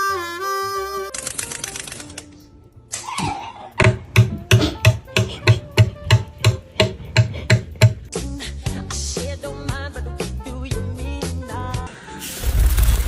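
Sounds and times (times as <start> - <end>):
rhythmic knocking: 3.8 - 8.1.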